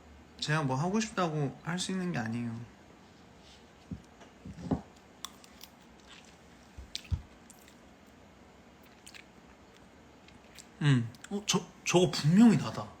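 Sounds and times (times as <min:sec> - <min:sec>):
mouth clicks and smacks: 0:05.2 - 0:07.8, 0:08.8 - 0:11.4.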